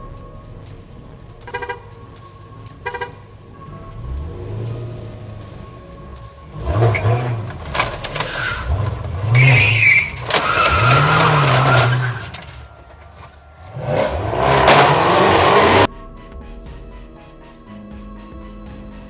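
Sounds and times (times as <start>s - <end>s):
music: 0.0s - 11.8s, 15.8s - 19.0s
car engine revving: 0.0s - 15.9s.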